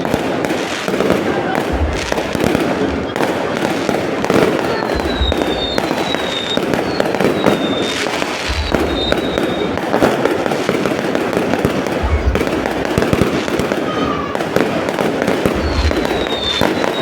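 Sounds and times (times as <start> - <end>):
fireworks crackling and popping: 0.0 - 17.0
deep booms: 1.7 - 3.0, 8.3 - 13.6
high falling whistles: 4.9 - 9.8.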